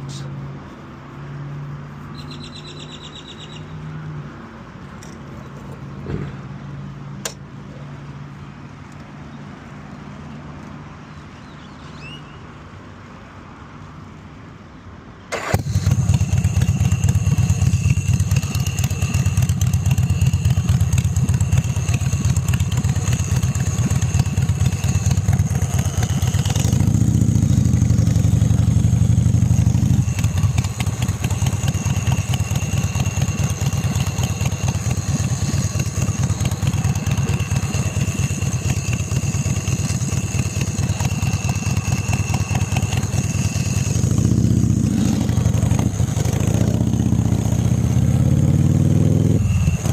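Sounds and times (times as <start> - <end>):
motorcycle engine running: 15.4 - 49.9.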